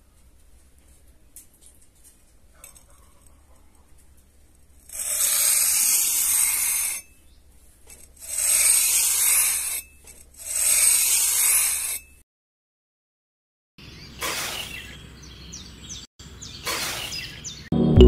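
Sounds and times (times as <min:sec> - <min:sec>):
metal trowel scraping sand: 0:04.7 - 0:07.2, 0:07.8 - 0:12.2, 0:14.2 - 0:14.8.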